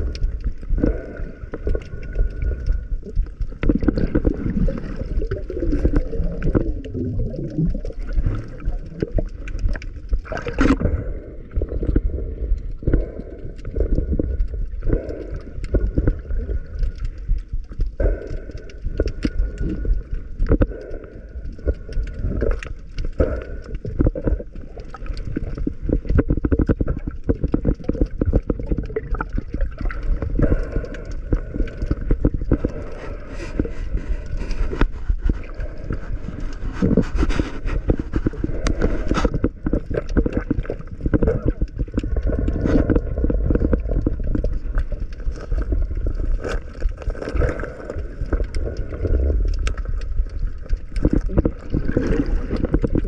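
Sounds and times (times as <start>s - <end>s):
muffled underwater rumble: 0.0s - 53.0s
water bubbling: 0.0s - 53.0s.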